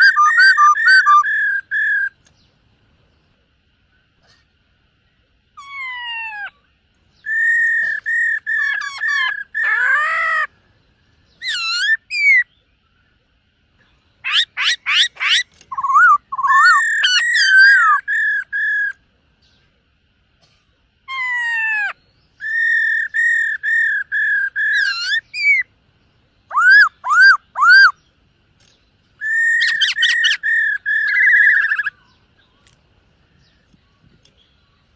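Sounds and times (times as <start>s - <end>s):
laughingthrush whistled song: 0.0s - 2.2s, 7.2s - 10.5s, 11.3s - 12.6s, 14.2s - 19.0s, 21.2s - 25.7s, 26.5s - 28.0s, 29.2s - 32.7s.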